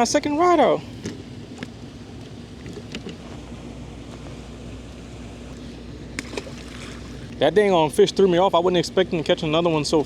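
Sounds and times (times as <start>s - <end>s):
faint hum: 0.0s - 10.0s
low wind: 0.0s - 10.0s
water noise: 1.0s - 8.9s.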